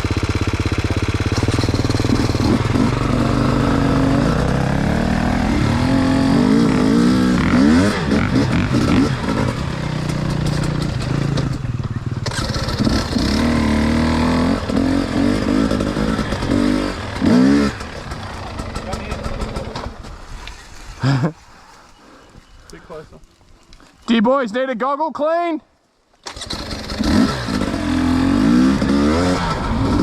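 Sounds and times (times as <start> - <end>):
dirt bike engine revving: 0.0 - 20.1, 26.3 - 30.0.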